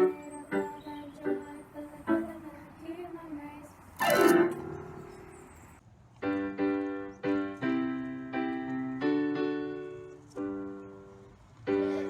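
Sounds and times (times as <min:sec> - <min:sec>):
piano chords ringing: 0:04.0 - 0:12.0.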